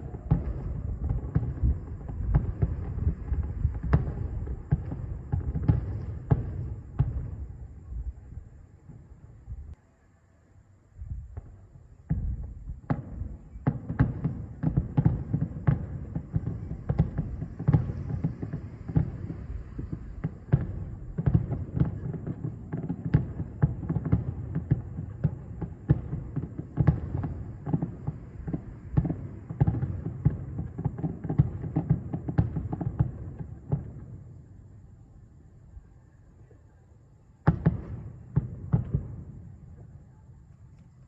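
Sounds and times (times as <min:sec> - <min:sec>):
distant fireworks bangs: 0:00.0 - 0:09.7, 0:11.0 - 0:35.7, 0:37.3 - 0:41.0.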